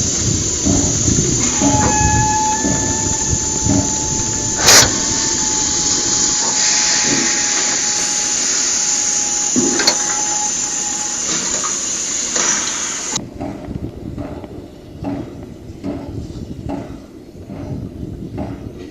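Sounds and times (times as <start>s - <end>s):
soft locomotive chuffs: 0.0s - 13.2s
steam locomotive hissing: 0.0s - 13.2s
faint held tone: 0.8s - 11.2s.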